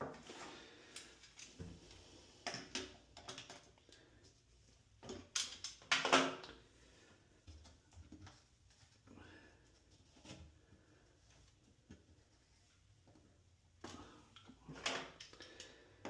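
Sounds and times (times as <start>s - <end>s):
clicks and scrapes of drain parts: 2.4s - 4.0s.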